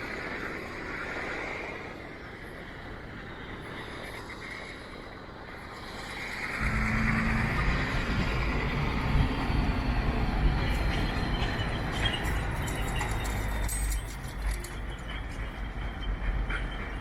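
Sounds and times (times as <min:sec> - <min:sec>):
street traffic passing: 0:00.0 - 0:17.0
large vehicle rumbling: 0:05.9 - 0:17.0.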